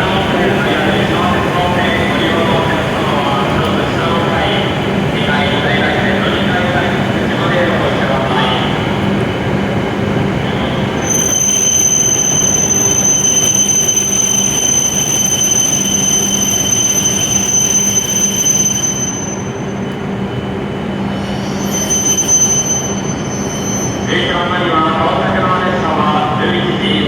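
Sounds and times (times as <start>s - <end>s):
train running noise: 0.0s - 27.0s
high-pitched train squeal: 10.5s - 24.8s.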